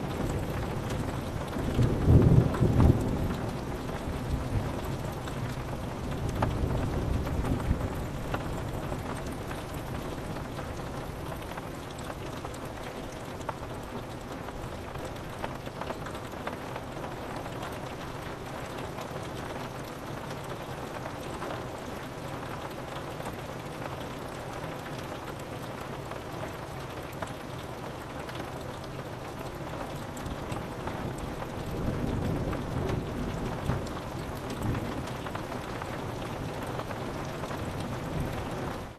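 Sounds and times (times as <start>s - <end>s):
rain pattering on window: 0.0s - 38.9s
low thunder rumble: 0.2s - 10.0s.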